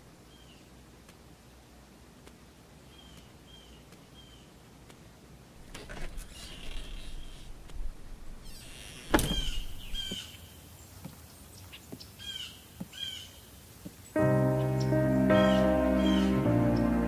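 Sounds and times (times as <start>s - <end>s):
bird chirping: 2.8s - 4.6s, 8.4s - 17.0s
music: 14.2s - 17.0s.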